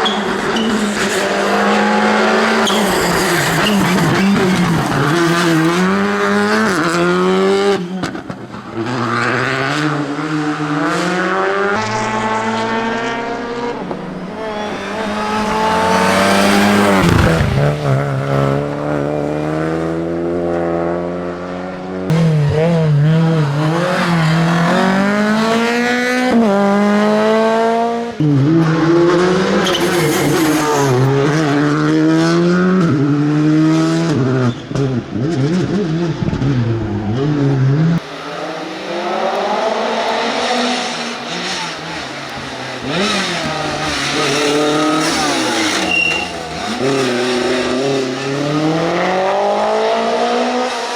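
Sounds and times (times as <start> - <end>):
rally car engine revving hard: 0.0 - 50.9.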